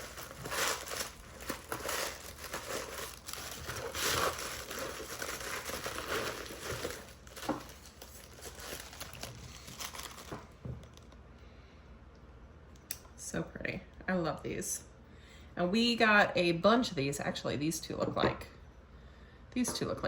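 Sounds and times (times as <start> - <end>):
packaging crinkling and rustling: 0.0 - 11.2.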